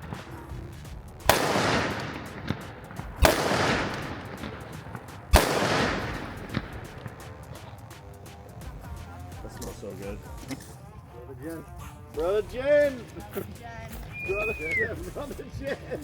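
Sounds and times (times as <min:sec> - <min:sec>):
gunshots echoing: 0:00.0 - 0:10.7
faint sharp cracks: 0:01.2 - 0:08.7.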